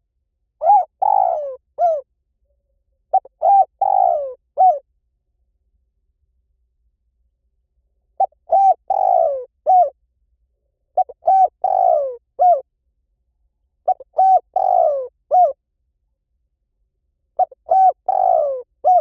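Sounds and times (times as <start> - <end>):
dove cooing: 0.6 - 2.0, 3.1 - 4.8, 8.2 - 10.0, 11.0 - 12.6, 13.9 - 15.6, 17.4 - 19.0.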